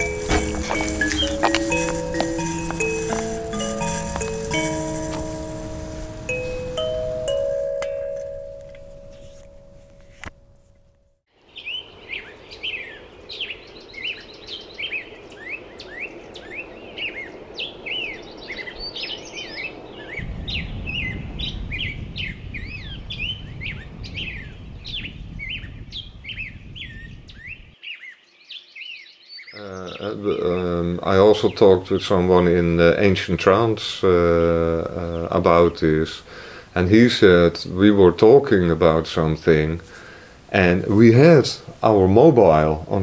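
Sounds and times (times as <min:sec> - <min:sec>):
songbirds chirping and singing: 0:00.0 - 0:08.2, 0:11.5 - 0:43.0
steady outdoor hum: 0:00.0 - 0:10.6
kalimba notes ringing: 0:00.0 - 0:11.0
low rumble: 0:20.2 - 0:25.0.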